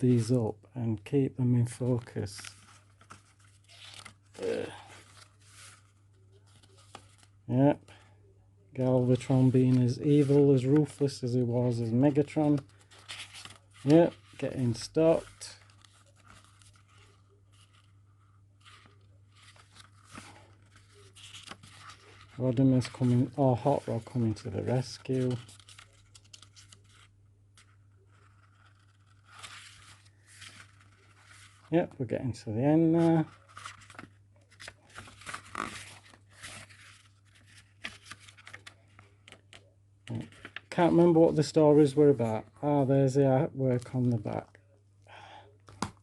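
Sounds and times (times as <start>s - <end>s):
book pages rustling and turning: 1.6s - 7.4s, 8.8s - 31.7s, 32.8s - 42.8s, 45.6s - 46.0s
paper rustles and clicks: 33.1s - 41.0s.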